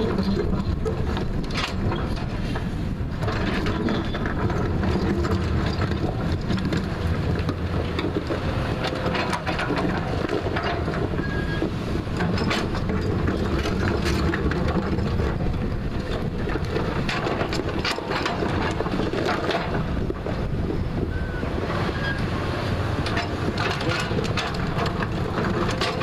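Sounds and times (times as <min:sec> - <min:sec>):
bucket clanking and scraping: 0:00.0 - 0:26.0
diesel engine running under load: 0:00.0 - 0:26.0.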